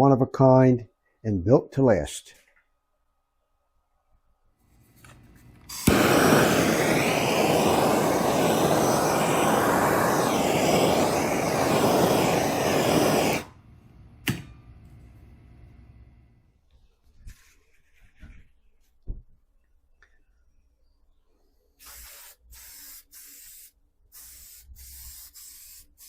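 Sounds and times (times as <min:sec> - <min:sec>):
woodworking power tool running: 0:05.7 - 0:13.5.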